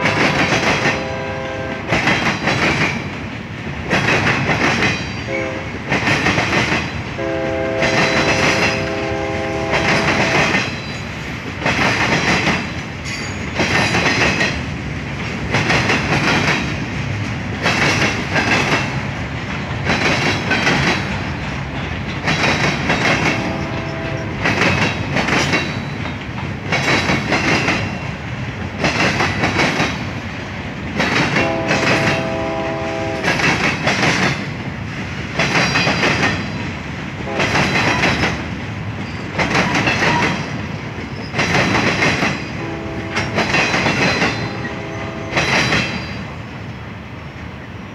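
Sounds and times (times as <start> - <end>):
train horn: 0.0 - 2.0, 5.3 - 5.8, 7.2 - 10.6, 23.1 - 24.5, 31.3 - 33.6, 37.2 - 38.1, 42.5 - 43.7, 44.3 - 46.0
train wheels clattering over rail joints: 0.0 - 46.4.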